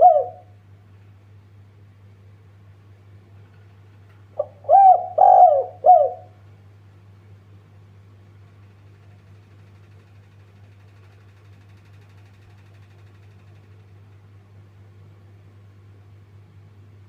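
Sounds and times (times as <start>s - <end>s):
dove cooing: 0.0s - 0.6s, 4.4s - 6.4s
steady low hum: 0.0s - 17.0s.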